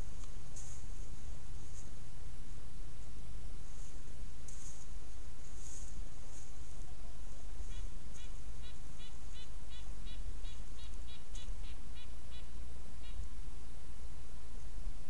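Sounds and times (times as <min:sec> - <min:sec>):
steady low hiss: 0:00.0 - 0:15.0
bird calling short notes: 0:07.7 - 0:13.2.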